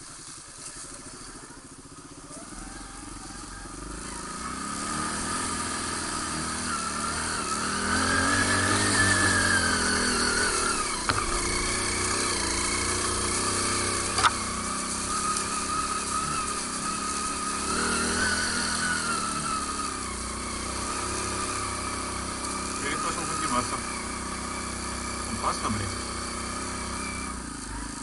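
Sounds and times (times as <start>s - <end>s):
motorbike engine whining uphill: 0.0s - 28.0s
sharp knocks: 10.9s - 12.0s.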